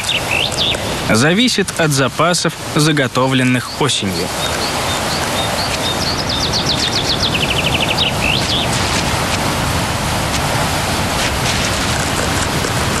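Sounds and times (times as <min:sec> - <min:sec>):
songbird trill: 0:00.0 - 0:00.8, 0:03.4 - 0:09.3
steady hiss: 0:00.0 - 0:13.0.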